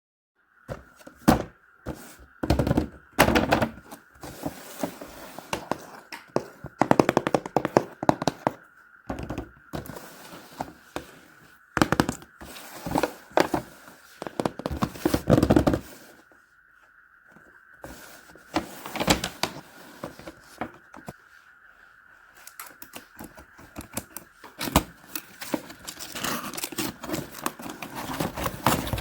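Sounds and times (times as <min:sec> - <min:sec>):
faint high-pitched whine: 0:00.4 - 0:29.0
knocks and scrapes from toy box: 0:00.7 - 0:16.2, 0:17.8 - 0:21.2, 0:22.5 - 0:29.0.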